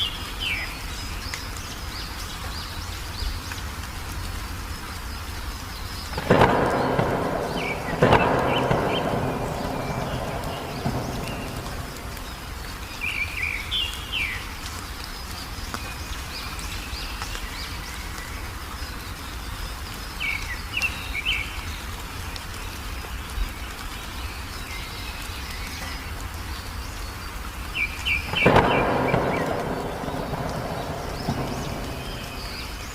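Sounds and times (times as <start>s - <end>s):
birds chirping: 4.9s - 32.9s
low background rumble: 6.0s - 13.3s, 28.5s - 32.9s.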